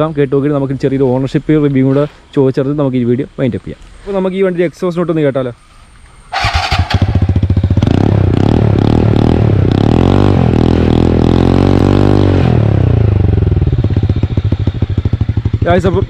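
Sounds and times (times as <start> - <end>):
scooter engine revving: 6.3 - 16.0.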